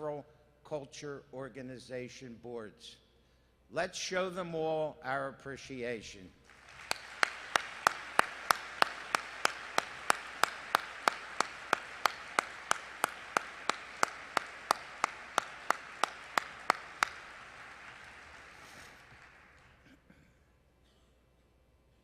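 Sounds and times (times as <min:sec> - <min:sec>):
close sharp claps: 0:06.4 - 0:20.0
audience applauding: 0:06.5 - 0:19.9.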